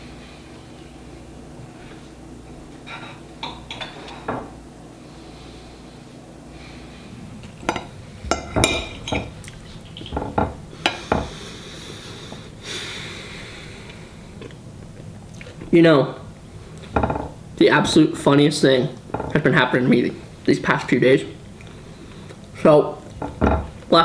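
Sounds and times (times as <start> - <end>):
dishes and cutlery clinking: 2.8 - 4.5, 7.4 - 11.4, 16.8 - 18.2, 19.0 - 19.5, 23.0 - 24.0.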